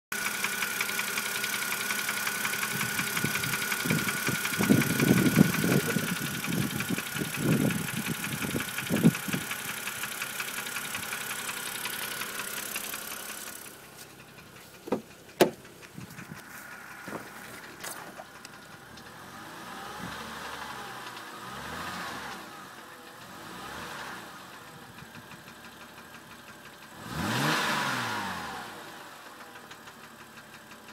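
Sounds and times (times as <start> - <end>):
car engine revving with ticking: 0.1 - 30.9.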